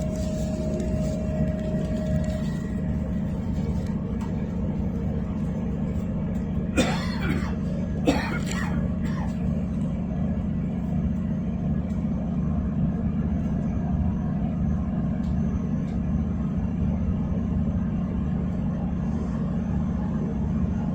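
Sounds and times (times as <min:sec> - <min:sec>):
train rumble inside carriage: 0:00.0 - 0:20.9.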